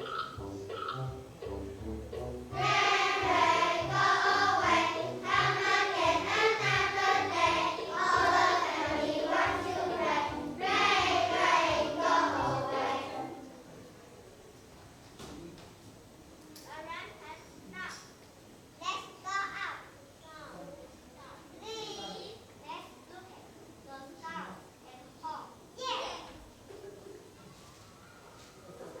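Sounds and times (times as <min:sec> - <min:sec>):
backing accompaniment: 0:00.0 - 0:13.7
children singing in unison: 0:02.5 - 0:13.4.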